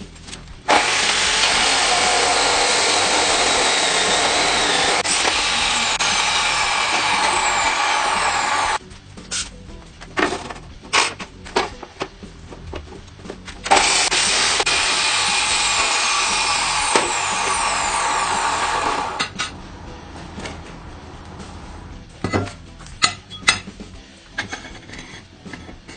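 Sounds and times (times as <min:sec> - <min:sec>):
power tool running: 0:00.7 - 0:08.8, 0:13.7 - 0:21.9.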